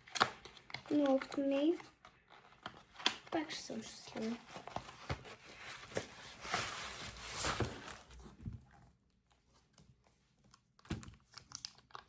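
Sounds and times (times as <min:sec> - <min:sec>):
packaging tearing and rustling: 0:04.0 - 0:08.2.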